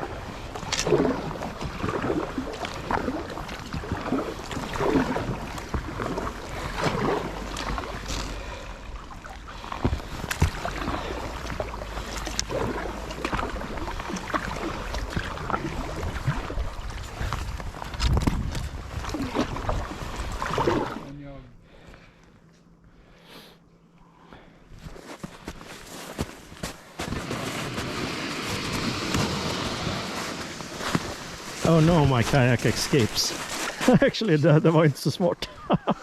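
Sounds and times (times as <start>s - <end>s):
low wind rumble on microphone: 0.0s - 21.0s
paddle strokes splashing in water: 0.0s - 21.1s, 25.0s - 34.2s.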